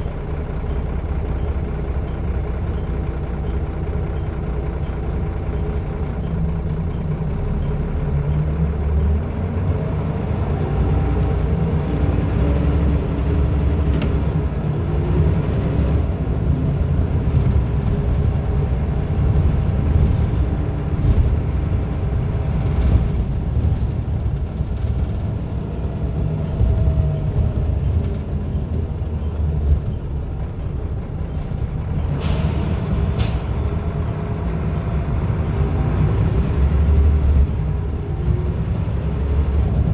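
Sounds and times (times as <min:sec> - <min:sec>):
bus diesel engine running: 0:00.0 - 0:39.9
air brakes hissing: 0:31.4 - 0:33.8.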